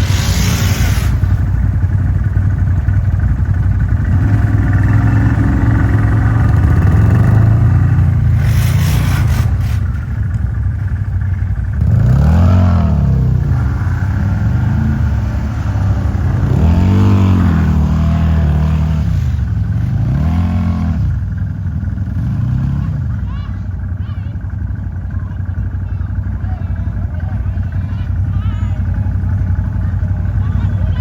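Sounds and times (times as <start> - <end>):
short burst of noise: 0.0 - 1.5
quad engine revving: 0.0 - 10.6, 11.3 - 23.3.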